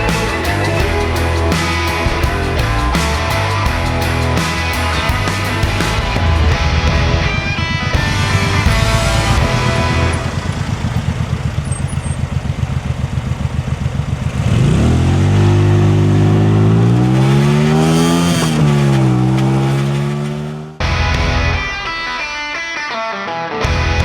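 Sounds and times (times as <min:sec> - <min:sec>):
guitar music: 0:00.0 - 0:10.7, 0:16.0 - 0:24.0
motorbike engine revving: 0:00.0 - 0:20.8.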